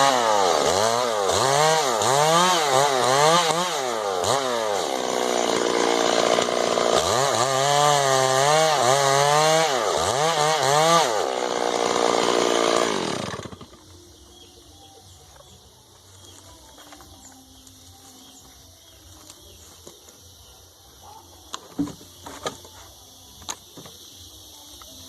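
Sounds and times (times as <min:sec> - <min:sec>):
chainsaw cutting wood: 0:00.0 - 0:13.9.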